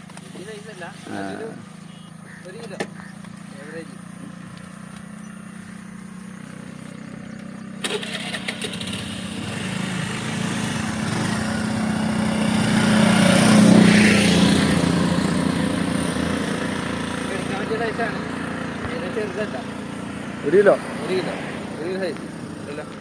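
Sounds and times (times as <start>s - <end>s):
vehicle engine passing by: 0.0s - 23.0s.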